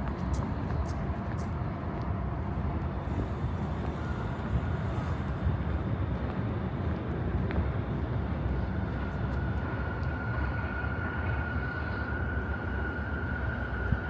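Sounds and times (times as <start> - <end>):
low city rumble: 0.0 - 14.0
high-pitched whine: 8.4 - 14.0.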